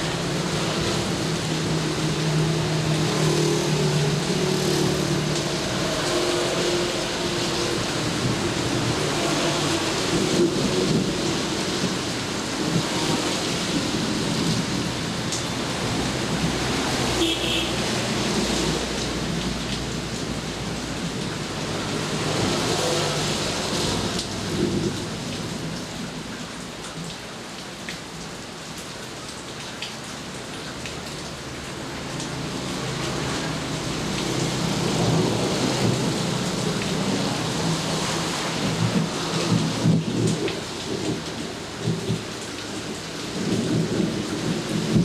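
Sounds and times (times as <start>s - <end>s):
heavy rain falling: 0.0s - 45.0s.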